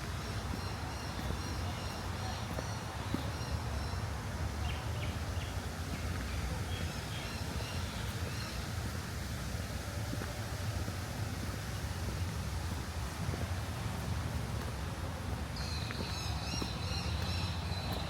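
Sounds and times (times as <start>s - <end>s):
birds chirping: 15.5s - 18.0s.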